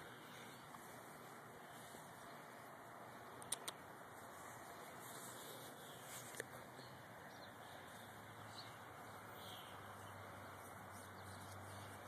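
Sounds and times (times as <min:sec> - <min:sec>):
steady outdoor hiss: 0:00.0 - 0:12.0
distant bird chirps: 0:05.1 - 0:12.0.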